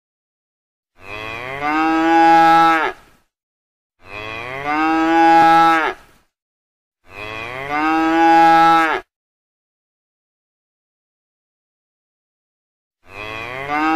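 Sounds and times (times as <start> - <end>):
cow mooing: 1.0 - 3.0, 4.0 - 6.0, 7.1 - 9.1, 13.0 - 13.9.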